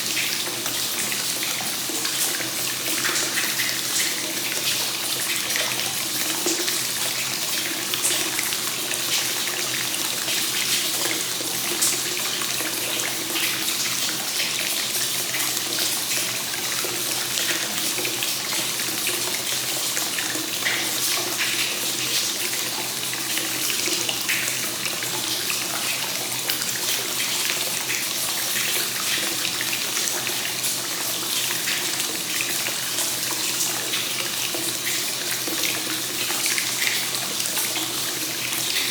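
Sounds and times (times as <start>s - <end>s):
water pouring into bath: 0.0s - 38.9s.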